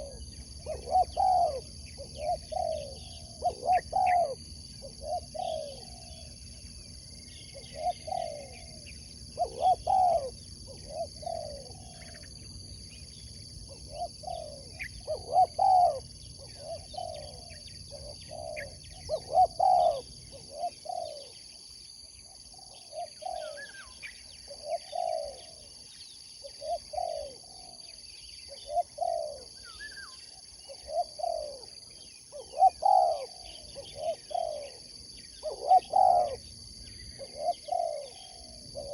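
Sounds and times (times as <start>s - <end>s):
dove cooing: 0.0s - 12.5s, 13.5s - 21.6s, 22.3s - 25.8s, 26.4s - 38.9s
small birds chirping: 0.0s - 38.9s.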